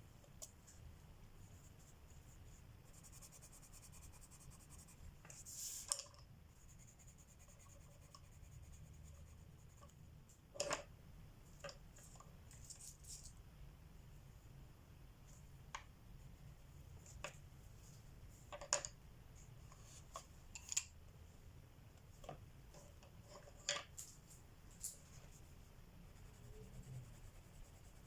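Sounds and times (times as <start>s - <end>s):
pencil scratching on paper: 1.6s - 5.8s, 6.6s - 9.9s, 26.1s - 28.0s.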